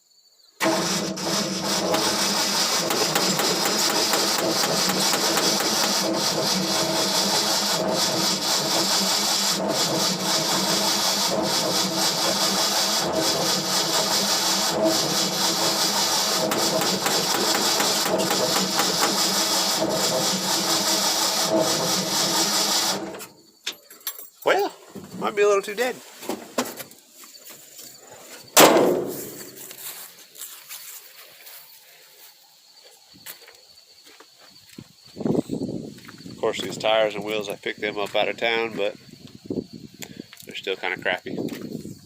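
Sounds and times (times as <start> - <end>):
starter motor cranking engine: 0.6 - 23.3.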